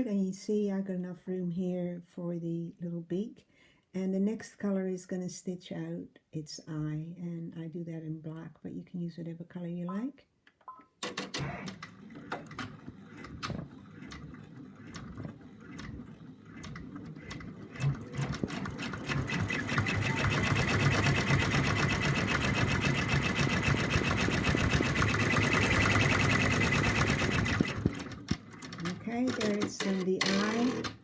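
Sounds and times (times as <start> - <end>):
embroidery machine stitching: 11.0 - 31.0.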